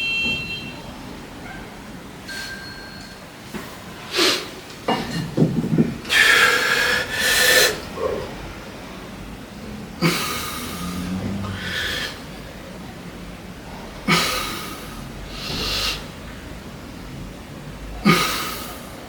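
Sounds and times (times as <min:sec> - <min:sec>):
person breathing hard: 0:06.1 - 0:08.2, 0:10.0 - 0:12.5, 0:14.1 - 0:16.1.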